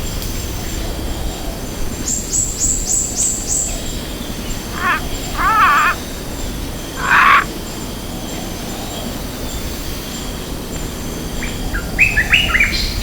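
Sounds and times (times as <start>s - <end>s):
low wavering animal calls: 4.5s - 6.0s, 7.0s - 7.5s
high falling animal chirps: 4.7s - 6.0s, 7.0s - 7.5s.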